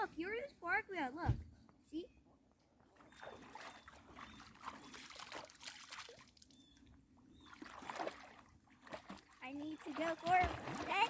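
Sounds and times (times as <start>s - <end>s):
water trickling and splashing: 2.8s - 11.0s.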